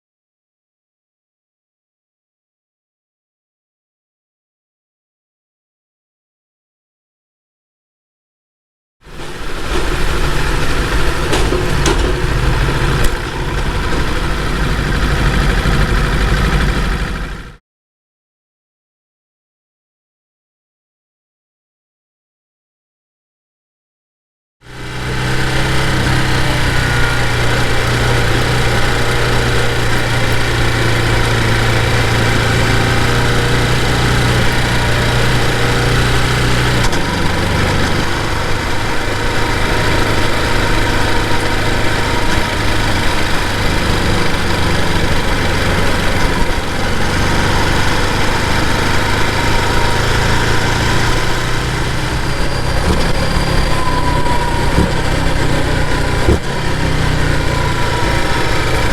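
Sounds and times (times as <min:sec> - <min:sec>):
motorcycle engine running: 0:09.1 - 0:17.6, 0:24.6 - 0:58.9.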